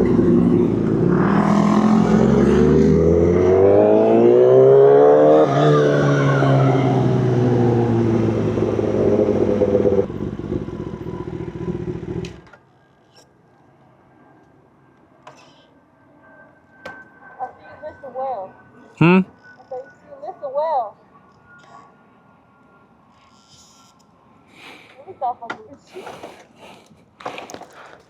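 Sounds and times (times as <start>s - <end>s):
motorcycle engine revving: 0.0s - 12.4s.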